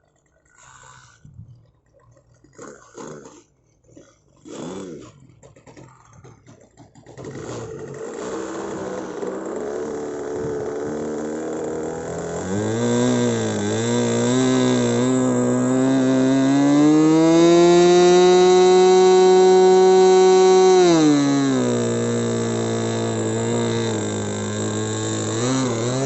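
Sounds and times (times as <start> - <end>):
model plane engine running: 7.2 - 26.0.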